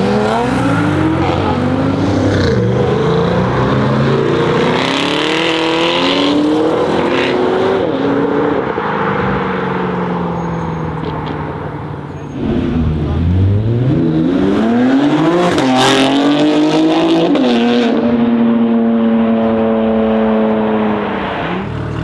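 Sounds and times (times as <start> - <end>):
car accelerating hard with gear changes: 0.0 - 22.0.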